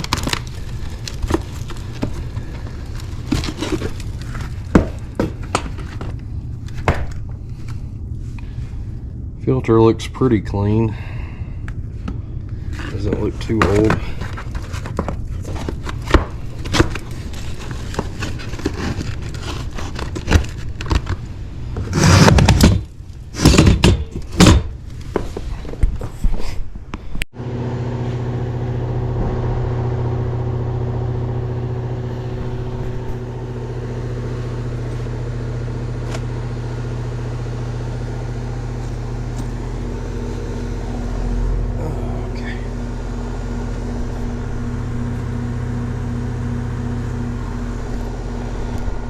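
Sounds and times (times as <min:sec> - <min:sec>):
handling knocks and clatter: 0:00.0 - 0:07.3, 0:12.0 - 0:26.4
heat pump unit humming: 0:00.0 - 0:25.8, 0:27.0 - 0:49.0.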